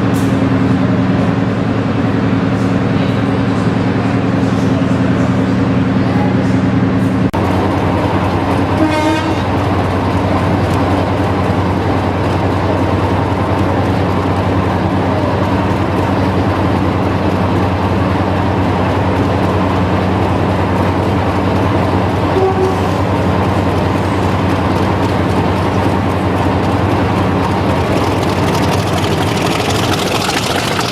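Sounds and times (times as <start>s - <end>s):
diesel locomotive engine rumbling: 0.0s - 30.9s
short wavering horn toot: 22.3s - 22.9s.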